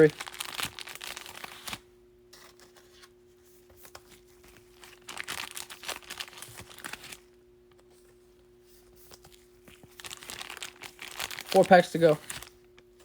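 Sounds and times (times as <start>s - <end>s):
foil wrapper crinkling: 0.0s - 1.8s, 3.8s - 7.4s, 8.8s - 13.0s
cards rustling and clicking: 0.0s - 8.2s, 8.8s - 13.0s
faint steady hum: 0.0s - 13.0s.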